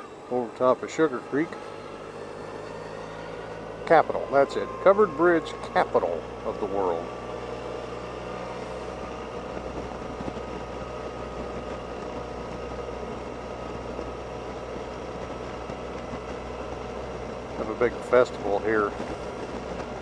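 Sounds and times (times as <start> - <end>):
scooter engine and road drone: 0.0 - 20.0.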